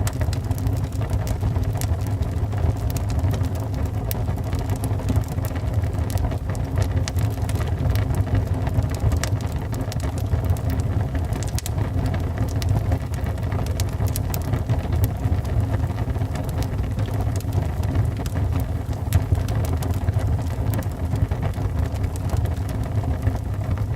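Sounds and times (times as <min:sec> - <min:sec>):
fire crackling and popping: 0:00.0 - 0:23.9
fire flames rumbling: 0:00.0 - 0:23.9.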